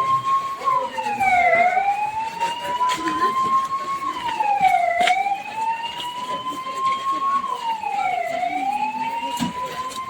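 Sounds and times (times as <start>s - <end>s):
emergency vehicle siren wailing: 0.0s - 10.0s.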